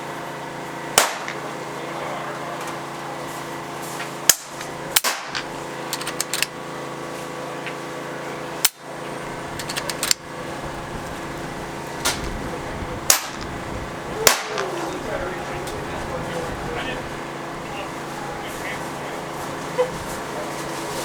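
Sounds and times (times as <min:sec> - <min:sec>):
steady hum: 0:00.6 - 0:07.2, 0:08.2 - 0:21.0
air rifle shots: 0:01.0 - 0:01.6, 0:04.3 - 0:06.6, 0:08.6 - 0:10.4, 0:12.0 - 0:15.2.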